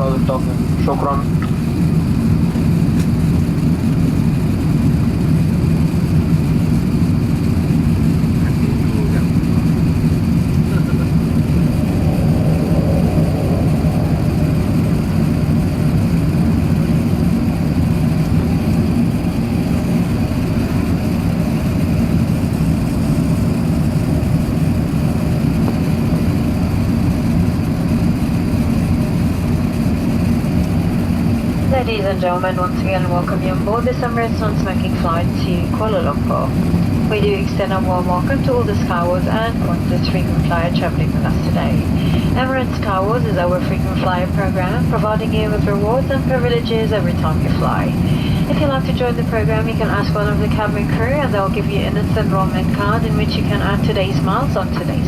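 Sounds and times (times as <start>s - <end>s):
airplane cabin engine drone: 0.0s - 55.0s.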